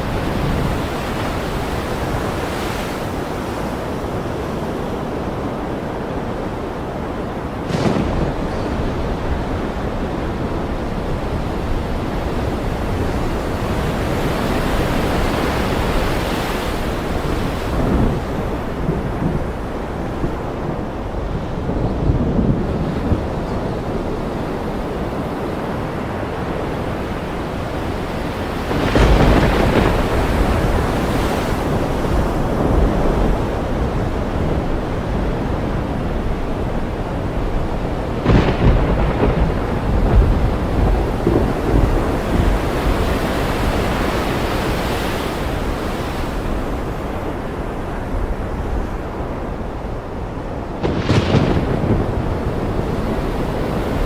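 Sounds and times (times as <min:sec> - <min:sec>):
ocean surf: 0:00.0 - 0:54.0
rain: 0:00.0 - 0:54.0
thunder cracks and rumbles: 0:07.3 - 0:24.7, 0:28.6 - 0:44.0, 0:50.7 - 0:54.0.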